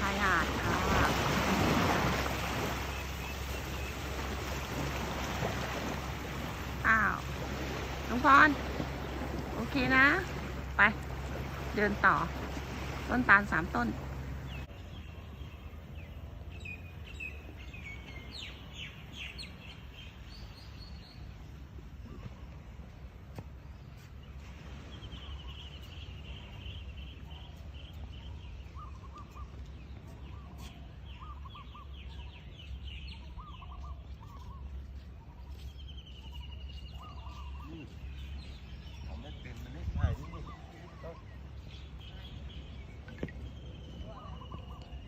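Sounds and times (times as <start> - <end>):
birds chirping high: 0.0 - 45.0
lower bird chirps: 13.4 - 22.8, 23.5 - 45.0.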